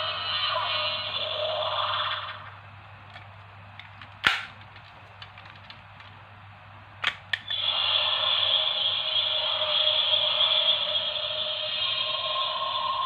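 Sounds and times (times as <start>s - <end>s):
plastic clicks: 3.1s - 6.2s, 7.0s - 7.5s.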